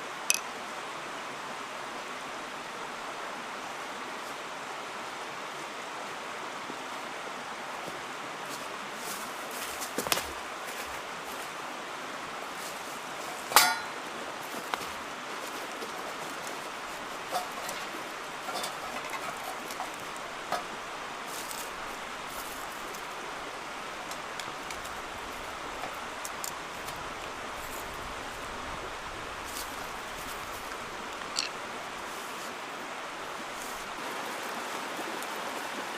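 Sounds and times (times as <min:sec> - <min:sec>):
mountain stream rushing: 0:00.0 - 0:35.9.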